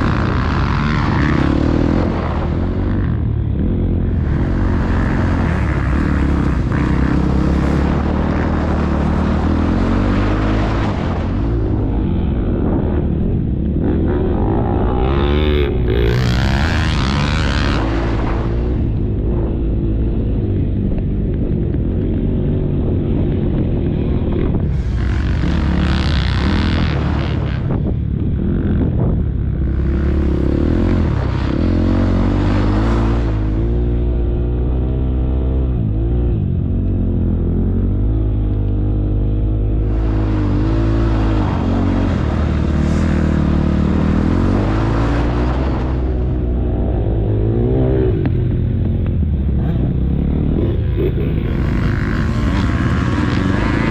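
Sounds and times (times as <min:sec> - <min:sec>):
motocross bike engine: 0:00.0 - 0:53.9
wind on microphone: 0:00.0 - 0:53.9.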